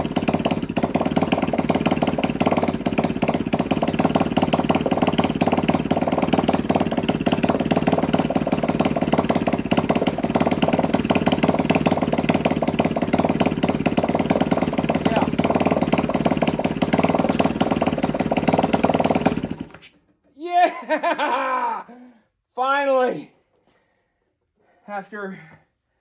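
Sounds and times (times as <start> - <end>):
small engine idling: 0.0 - 20.1.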